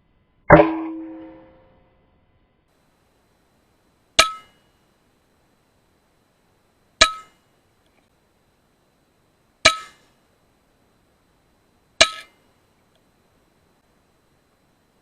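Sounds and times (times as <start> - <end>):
metallic ring: 0.5 - 1.9, 4.2 - 4.7, 7.0 - 7.4, 9.7 - 10.1, 12.0 - 12.4.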